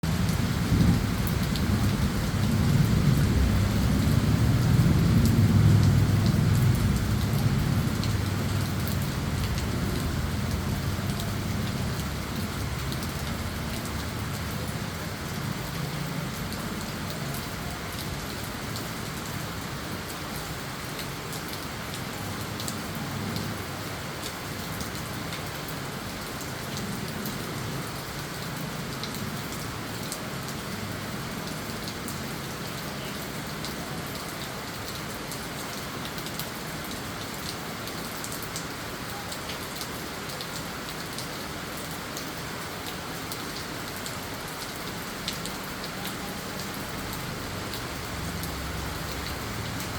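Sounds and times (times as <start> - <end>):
thunder rumbling: 0.0 - 14.0
rain pattering on surfaces: 0.0 - 49.9.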